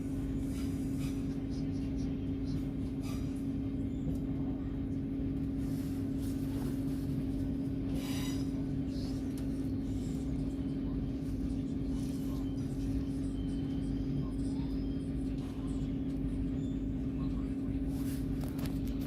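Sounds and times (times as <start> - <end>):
train interior drone: 0.0 - 19.0.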